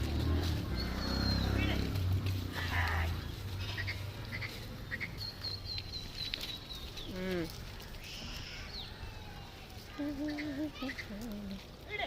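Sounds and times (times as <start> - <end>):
sheep or goat bleating: 2.6 - 4.4.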